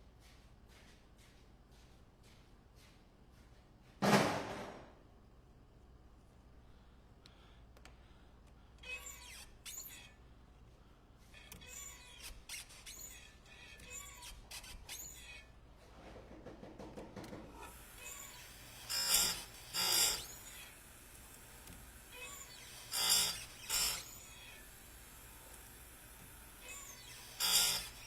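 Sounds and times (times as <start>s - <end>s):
grinding wheel on saw chain: 17.7s - 28.0s.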